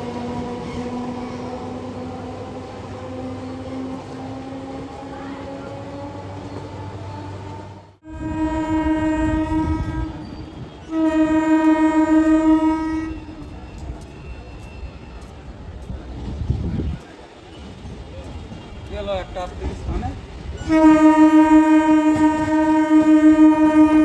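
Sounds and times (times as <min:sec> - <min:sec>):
train horn blasts: 0:08.0 - 0:13.6, 0:20.6 - 0:24.0.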